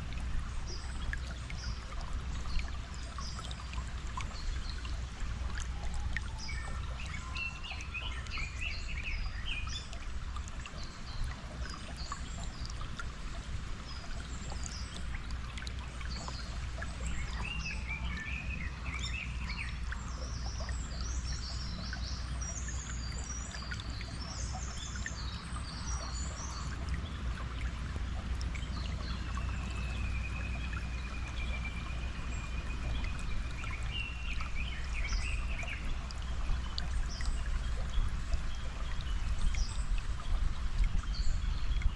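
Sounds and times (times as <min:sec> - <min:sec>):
stream water flowing: 0:00.0 - 0:41.9
birds singing: 0:06.2 - 0:10.0, 0:13.8 - 0:27.7.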